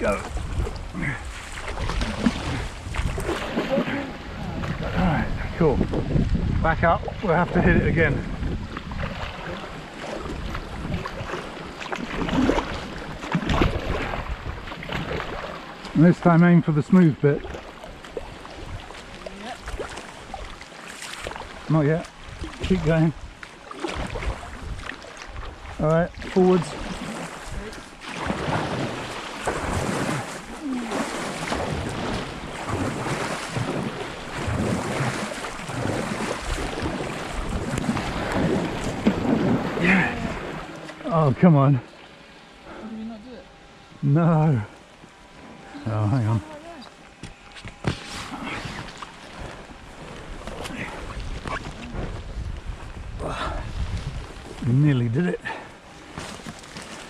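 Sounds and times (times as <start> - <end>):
wind noise on microphone: 0.0 - 9.6, 10.2 - 11.3, 24.0 - 25.7, 48.6 - 54.8
wind on microphone: 0.0 - 15.5, 22.3 - 40.8, 47.6 - 54.8
paddles splashing in water: 0.0 - 42.8, 44.8 - 57.0
knocks on kayak: 47.2 - 48.2.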